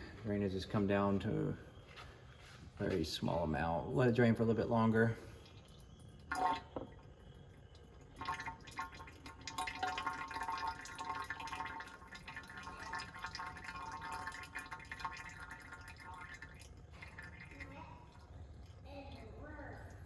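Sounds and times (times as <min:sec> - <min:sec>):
oil dripping into container: 0:04.2 - 0:20.0.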